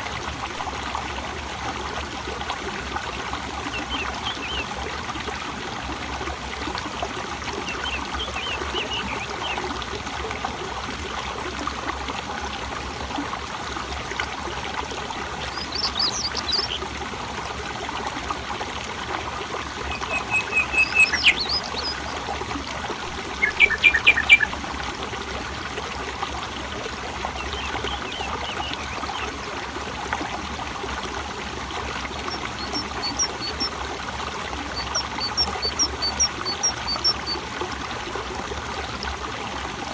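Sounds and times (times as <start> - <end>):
water flowing and trickling: 0.0 - 39.9
birds chirping and trilling: 7.6 - 9.6, 14.9 - 16.8, 19.8 - 22.2, 23.0 - 24.5, 27.4 - 29.3, 32.3 - 33.7, 34.7 - 37.4.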